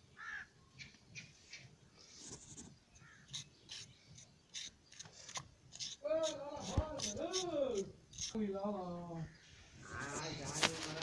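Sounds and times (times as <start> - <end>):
faint bird calls: 0.1 - 7.4.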